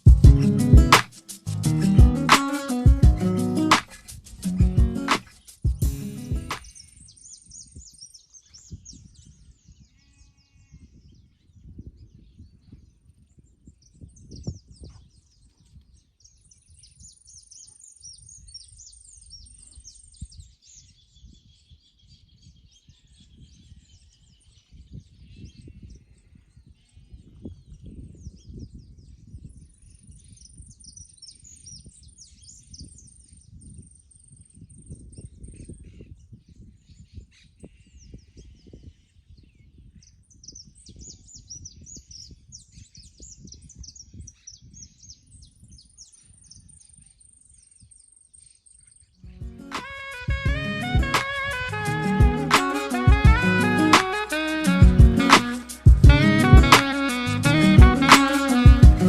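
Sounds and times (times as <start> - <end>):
birds chirping and calling: 0.0 - 11.1
thin high buzz: 49.5 - 59.0.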